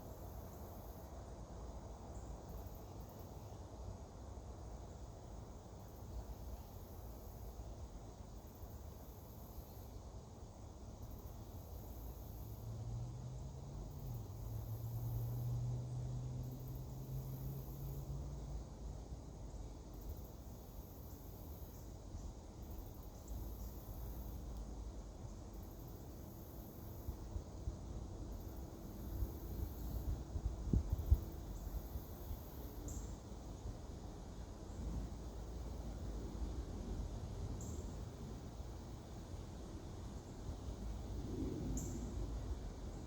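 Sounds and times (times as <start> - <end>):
insects chirping in pulses: 13.4 - 36.2, 40.0 - 43.0.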